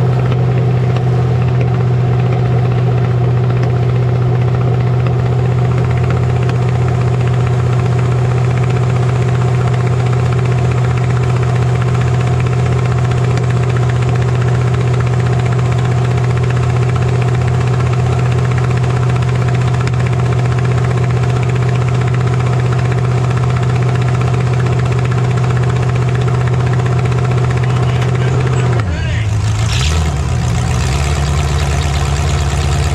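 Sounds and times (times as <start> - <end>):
vehicle engine idling: 0.0 - 32.9.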